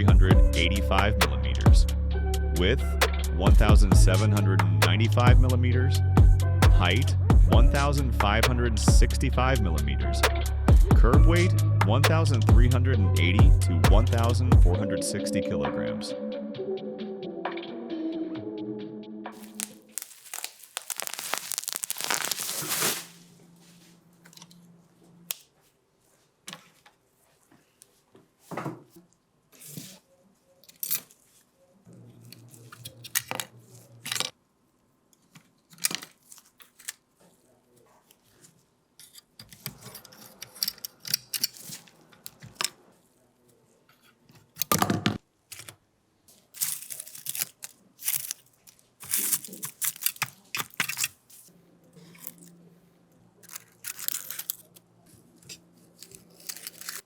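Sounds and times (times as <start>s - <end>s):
tearing and scraping: 19.4s - 23.2s, 46.5s - 52.6s, 53.4s - 54.8s, 55.4s - 57.0s.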